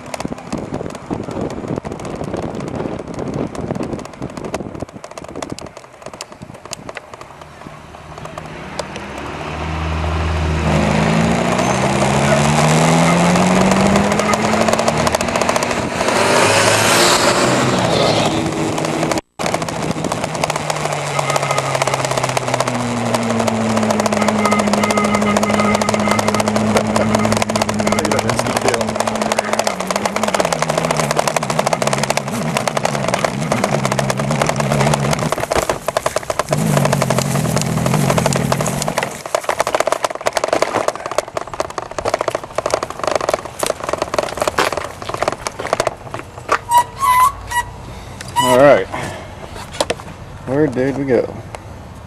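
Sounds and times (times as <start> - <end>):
wind buffeting microphone: 0.0 - 10.4, 11.0 - 21.1
vehicle rushing past: 7.6 - 19.2
pitched e-bike motor whine: 11.6 - 16.0, 19.4 - 39.3.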